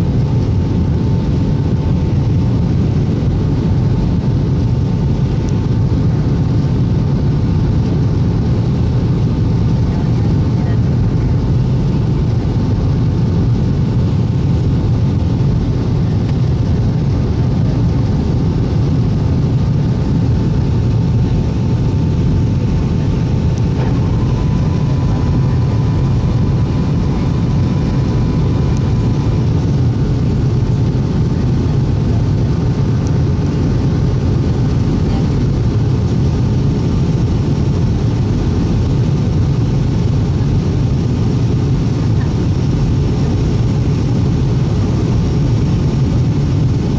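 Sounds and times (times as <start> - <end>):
faint whine: 0.0 - 46.9
jet engines rumbling: 0.0 - 46.9.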